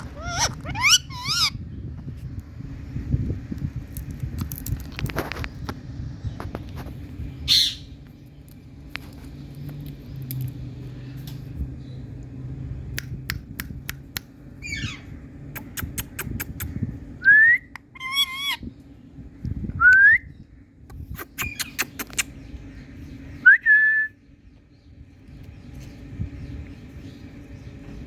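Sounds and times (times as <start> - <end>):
parrot warbling call: 0.0 - 1.6, 17.9 - 18.6
parrot whistling: 0.2 - 1.5.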